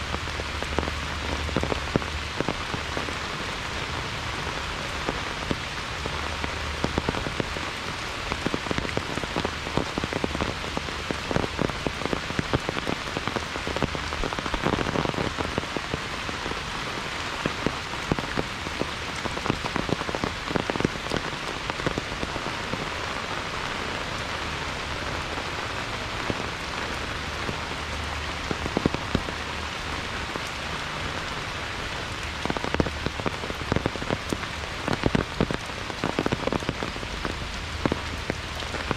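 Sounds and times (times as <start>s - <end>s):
heavy rain falling: 0.0s - 38.9s
sharp raindrop hits: 30.2s - 38.9s.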